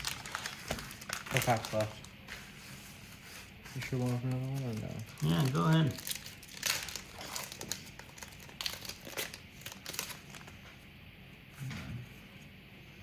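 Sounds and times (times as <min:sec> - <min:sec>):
plastic wrapper crinkling: 0:00.0 - 0:02.3, 0:03.7 - 0:10.6.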